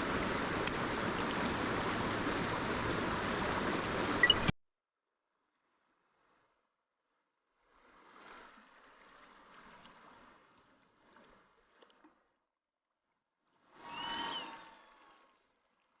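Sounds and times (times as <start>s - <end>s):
rushing water of stream: 0.0s - 4.5s.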